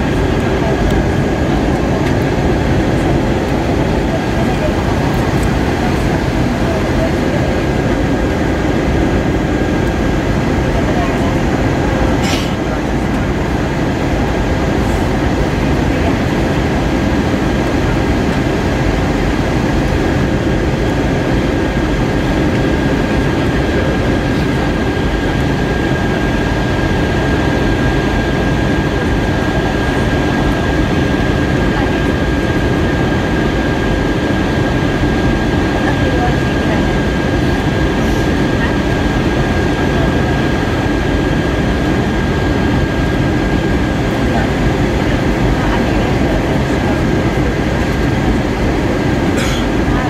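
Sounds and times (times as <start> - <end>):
airplane cabin noise: 0.0 - 50.0.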